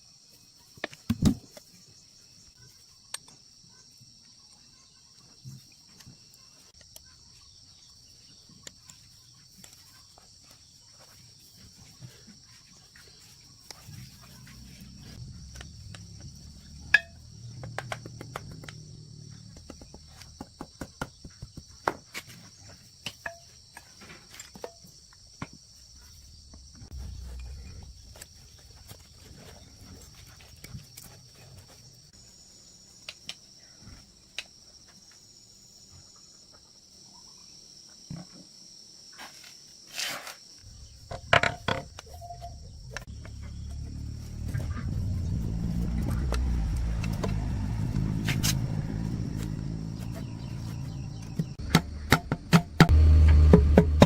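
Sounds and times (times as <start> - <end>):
crickets chirring: 0.0 - 53.2
low rumble: 13.9 - 19.7, 26.8 - 28.8, 42.5 - 52.1.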